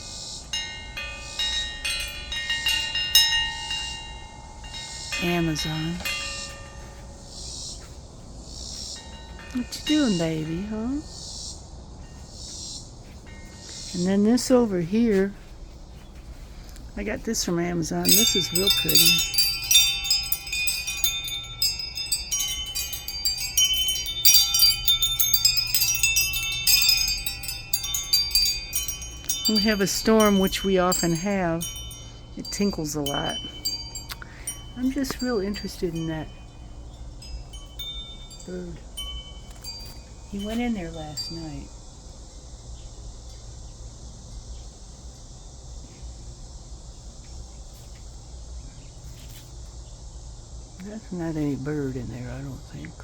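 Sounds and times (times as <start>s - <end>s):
wind chime ringing: 0.0s - 8.0s, 9.0s - 11.1s, 17.8s - 41.8s
high-pitched insect chorus: 0.0s - 53.0s.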